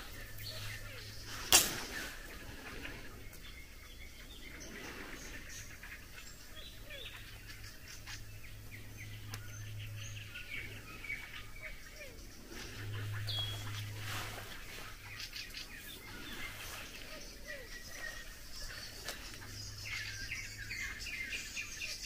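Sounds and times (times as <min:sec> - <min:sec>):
low steady hum: 0:00.0 - 0:22.0
songbirds singing: 0:00.0 - 0:22.0.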